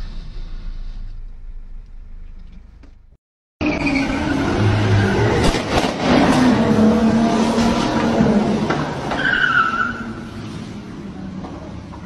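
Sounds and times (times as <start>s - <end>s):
car engine revving hard: 4.3s - 9.1s.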